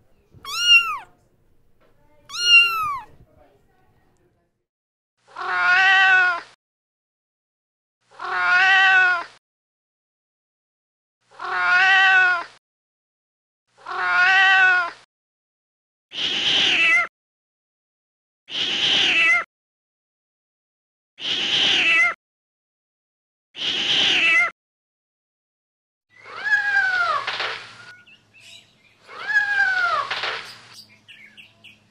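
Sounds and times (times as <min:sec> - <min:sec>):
cat meowing: 0:00.4 - 0:01.1, 0:02.3 - 0:03.2, 0:05.4 - 0:06.5, 0:08.2 - 0:09.3, 0:11.4 - 0:12.5, 0:13.9 - 0:15.0, 0:26.2 - 0:27.2, 0:29.1 - 0:30.2.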